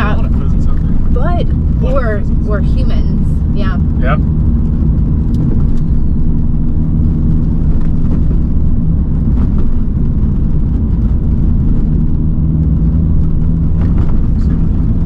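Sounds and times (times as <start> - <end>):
car engine drone: 0.0 - 15.0
tyre and road rumble: 0.0 - 15.0.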